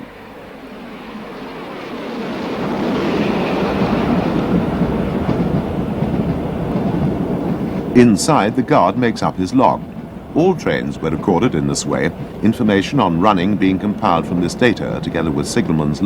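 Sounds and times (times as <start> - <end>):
steam train running: 0.0 - 16.0.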